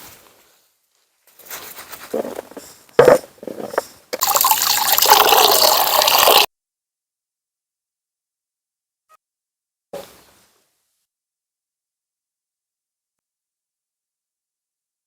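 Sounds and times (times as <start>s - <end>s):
liquid pouring: 3.0s - 6.5s.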